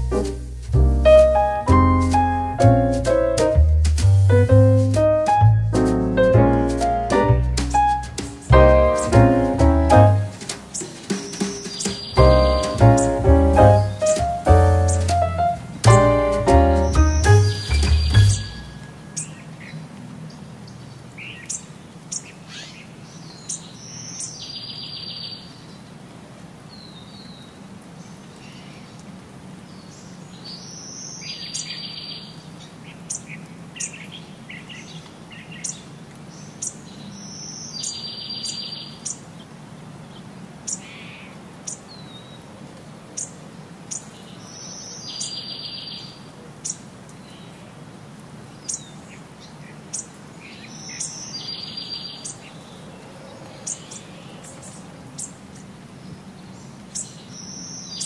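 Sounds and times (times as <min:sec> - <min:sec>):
bird chirps: 0:07.7 - 0:19.8, 0:36.5 - 0:39.2, 0:49.9 - 0:52.8.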